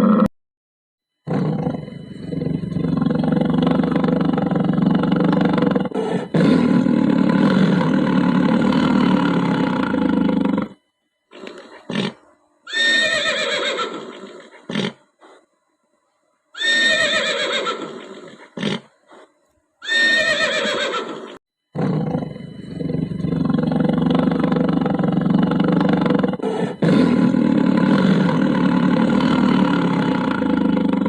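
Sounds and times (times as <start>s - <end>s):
horse snorting: 1.3s - 10.8s, 11.4s - 12.2s, 13.3s - 15.0s, 17.2s - 19.3s, 19.9s - 31.0s
rough animal sound: 1.3s - 13.0s, 21.8s - 31.0s
horse whinnying: 11.9s - 15.0s, 16.6s - 18.9s, 19.8s - 21.4s.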